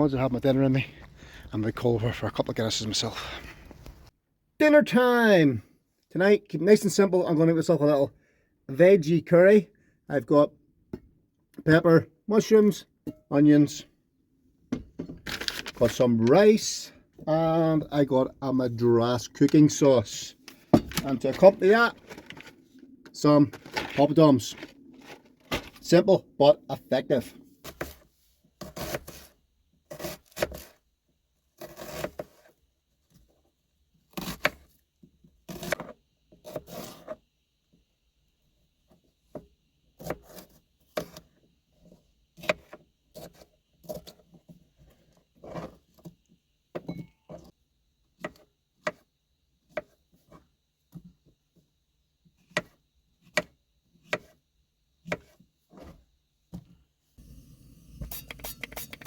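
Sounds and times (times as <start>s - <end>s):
knife scraping on board: 28.6s - 29.3s, 29.9s - 30.7s, 31.6s - 32.5s, 35.5s - 37.2s, 57.2s - 59.0s.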